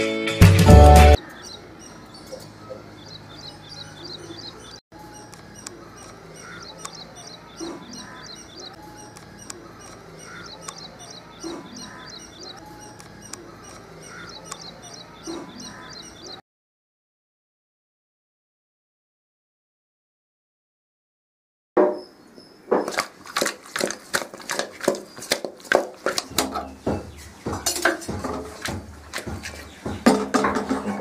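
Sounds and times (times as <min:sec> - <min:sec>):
birds chirping: 0:00.9 - 0:16.4, 0:21.8 - 0:31.0.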